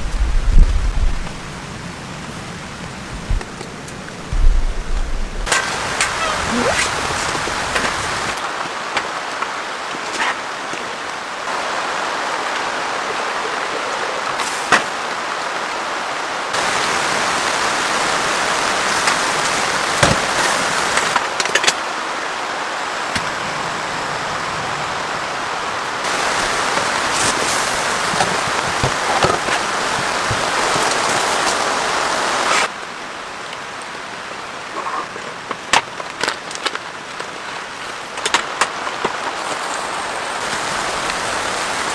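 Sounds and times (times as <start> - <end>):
heavy rain falling: 0.0 - 41.9
sharp raindrop impacts: 2.3 - 13.1.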